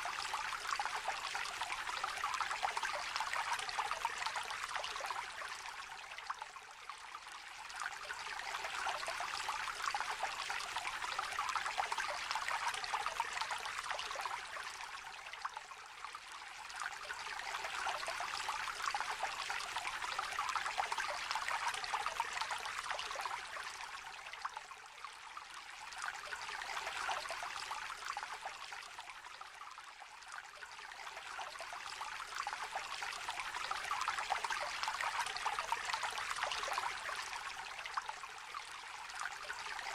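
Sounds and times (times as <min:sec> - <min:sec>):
stream babbling over stones: 0:30.4 - 0:39.9.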